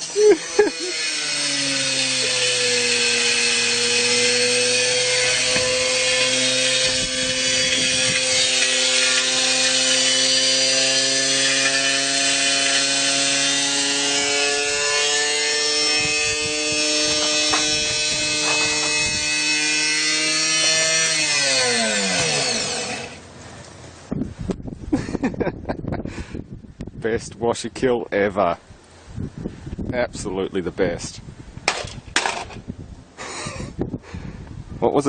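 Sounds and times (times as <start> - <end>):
drum rattling and grinding: 0.0 - 23.3, 31.6 - 32.7
washing machine motor whine: 0.0 - 23.3.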